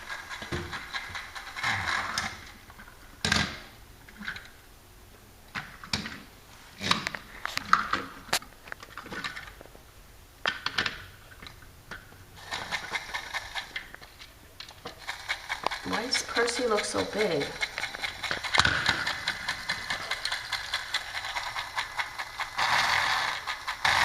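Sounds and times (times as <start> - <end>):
plastic toy trains clicking: 0.0 - 3.6, 12.4 - 24.0.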